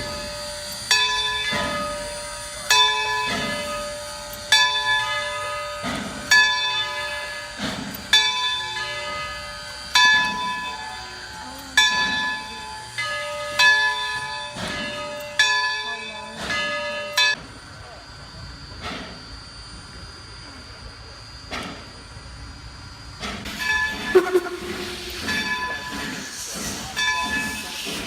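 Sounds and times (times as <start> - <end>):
locomotive bell ringing: 0.0 - 17.4.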